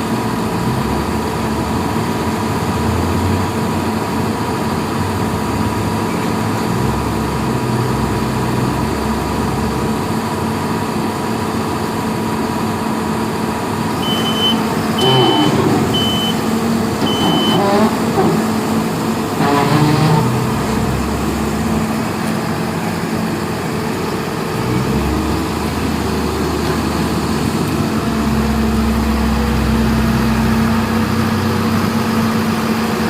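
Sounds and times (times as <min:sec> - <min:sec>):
heavy vehicle engine running: 0:00.0 - 0:33.0
reversing alarm beeping: 0:13.9 - 0:18.4.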